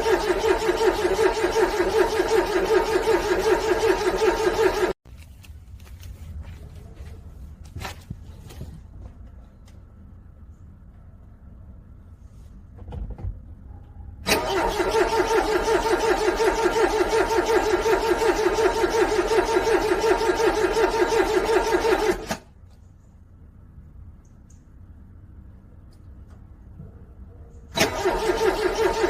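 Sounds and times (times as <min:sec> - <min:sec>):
car engine cranking on starter: 0:00.0 - 0:05.0, 0:14.2 - 0:22.5, 0:27.7 - 0:29.0.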